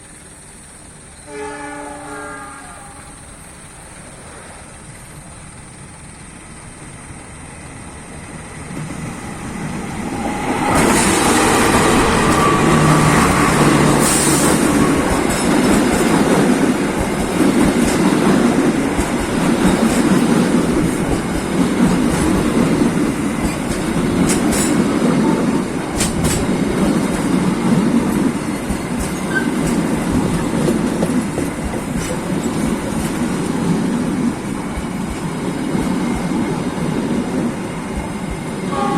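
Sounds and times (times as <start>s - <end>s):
train rumbling past: 0.0s - 38.9s
train horn: 1.2s - 3.3s, 10.2s - 15.2s, 38.6s - 38.9s
wheels clacking over rail joints: 8.7s - 38.6s.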